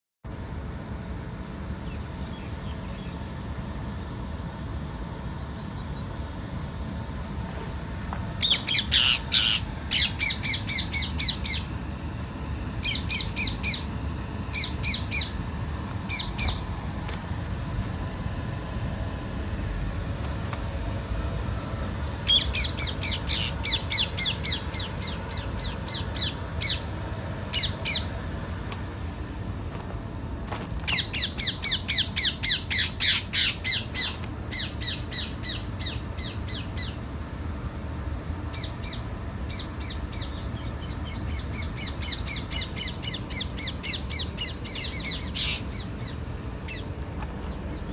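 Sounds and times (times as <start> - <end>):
steady low rumble: 0.3 - 47.9
parrots squawking: 8.4 - 11.7, 22.3 - 26.9, 30.9 - 37.0, 38.5 - 46.9.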